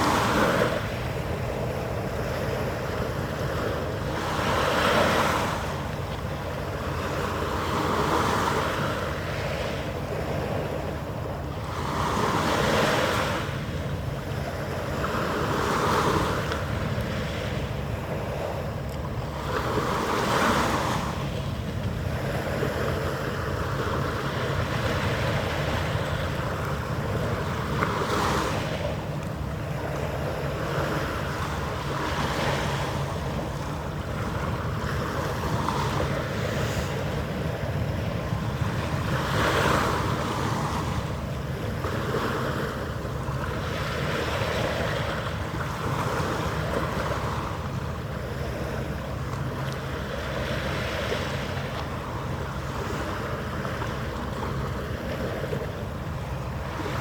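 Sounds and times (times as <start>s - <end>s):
water lapping: 0.0s - 57.0s
wind rumbling on microphone: 0.0s - 57.0s.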